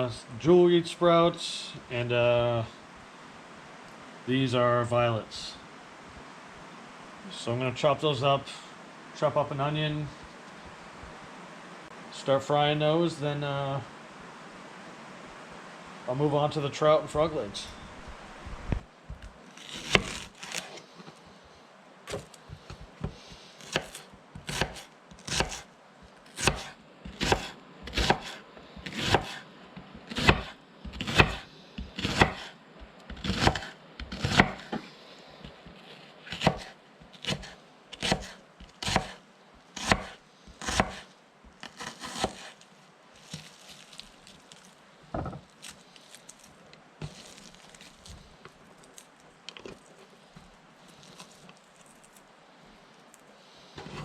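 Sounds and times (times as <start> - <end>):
knife chopping vegetables: 19.6 - 20.8, 22.1 - 25.6, 26.4 - 32.5, 33.1 - 34.9, 35.5 - 39.2, 39.8 - 41.0, 41.6 - 42.6.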